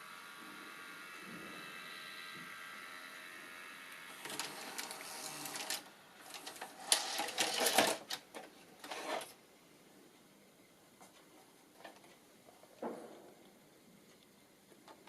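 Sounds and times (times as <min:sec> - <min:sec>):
tape mechanism clicks and whirring: 0:00.0 - 0:09.4.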